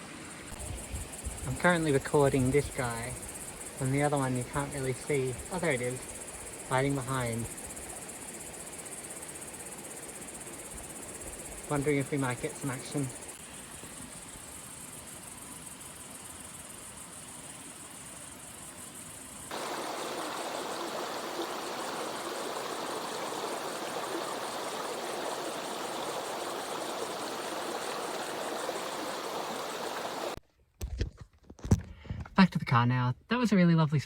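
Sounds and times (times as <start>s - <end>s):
river water flowing: 19.5s - 30.4s.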